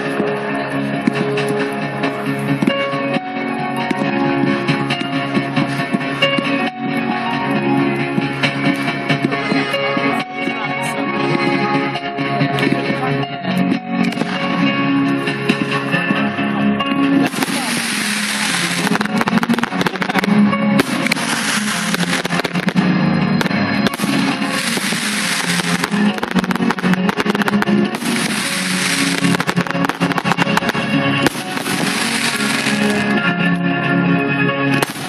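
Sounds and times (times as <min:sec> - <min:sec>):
music with guitar: 0:00.0 - 0:35.0
fireworks banging and crackling: 0:01.0 - 0:02.7, 0:14.0 - 0:14.7, 0:17.2 - 0:33.4, 0:34.8 - 0:35.0.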